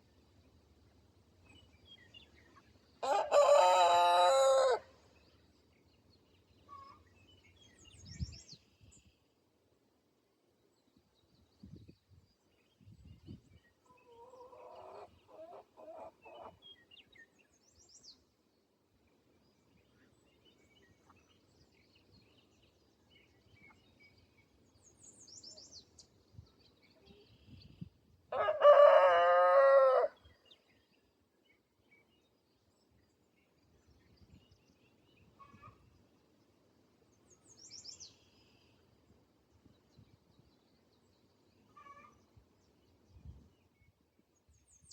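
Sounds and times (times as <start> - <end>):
rooster crowing: 3.0 - 4.9, 28.3 - 30.2
chicken clucking: 13.9 - 16.6.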